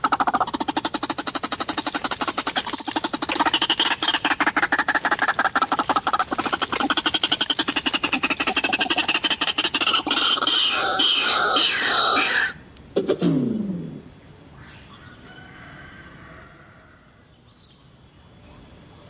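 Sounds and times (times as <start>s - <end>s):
bird calling rapid harsh notes: 0.0s - 12.6s.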